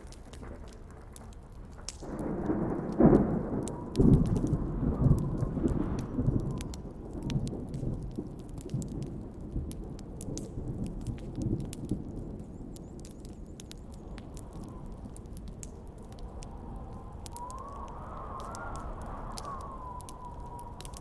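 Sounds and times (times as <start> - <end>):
campfire crackling and popping: 0.0 - 21.0
thunder cracking and rumbling: 0.0 - 21.0.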